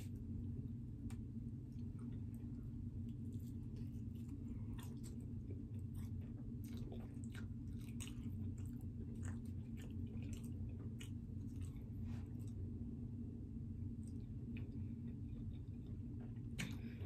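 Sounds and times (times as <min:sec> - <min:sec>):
steady low hum: 0:00.0 - 0:17.0
person chewing pizza: 0:01.6 - 0:12.8.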